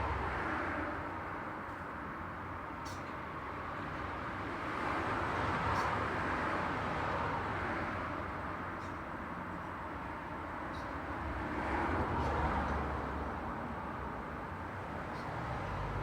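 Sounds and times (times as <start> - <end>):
road traffic noise: 0.0 - 16.0
vehicle passing: 15.4 - 16.0.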